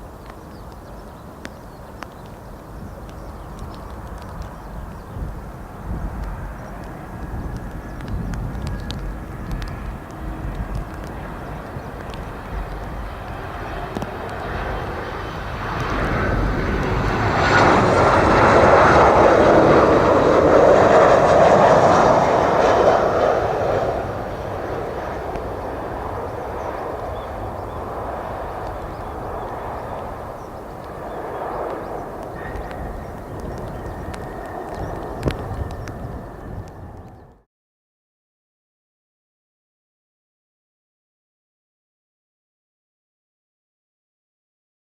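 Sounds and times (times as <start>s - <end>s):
jet airliner landing rumble: 0.0s - 37.5s.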